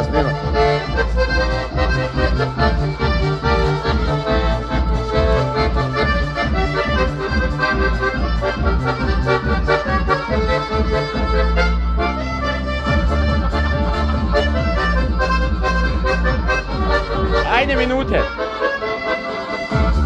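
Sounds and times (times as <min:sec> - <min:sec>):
accordion playing quick tune: 0:00.0 - 0:20.0.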